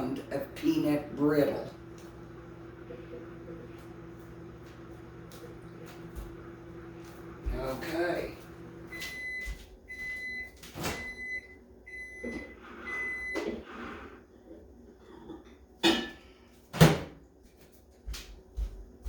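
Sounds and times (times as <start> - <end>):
microwave oven beeping: 1.4 - 14.1.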